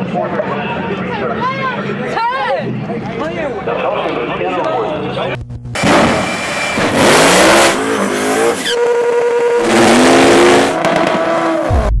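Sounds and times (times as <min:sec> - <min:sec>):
car engine accelerating hard: 0:06.8 - 0:11.9.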